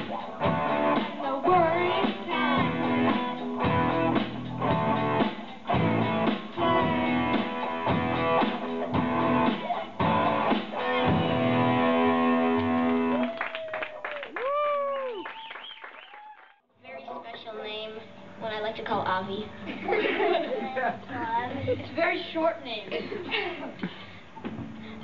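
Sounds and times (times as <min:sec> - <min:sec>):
rock band playing live: 0:00.0 - 0:13.1
electric guitar chords: 0:00.0 - 0:13.2.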